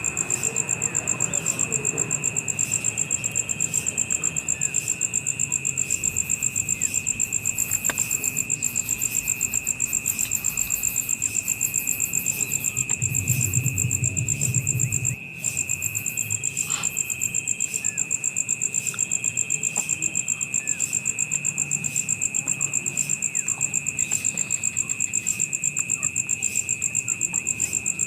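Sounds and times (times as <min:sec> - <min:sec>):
insects trilling: 0:00.0 - 0:28.0
low insect buzz: 0:00.3 - 0:18.8.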